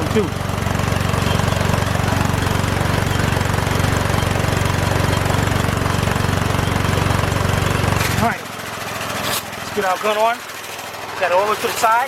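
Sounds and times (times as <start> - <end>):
air compressor running: 0.0 - 12.0.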